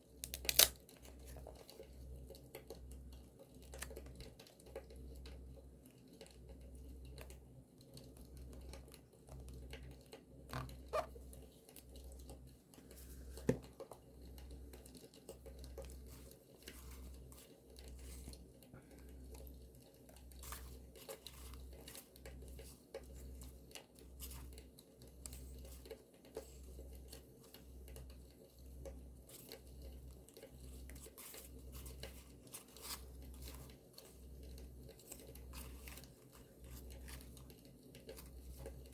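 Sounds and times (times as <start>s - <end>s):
paper rustling and tearing: 0.3s - 0.7s.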